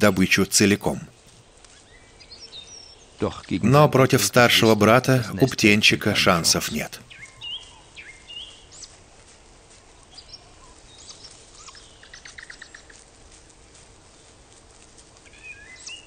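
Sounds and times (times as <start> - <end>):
forest ambience: 0.0 - 16.0
high bird chirps: 6.2 - 8.9, 10.2 - 13.0.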